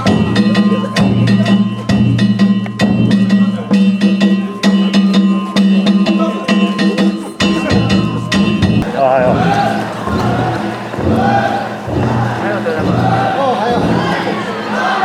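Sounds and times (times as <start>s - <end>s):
gongs ringing: 7.5s - 15.0s
taiko drum beating: 8.4s - 15.0s.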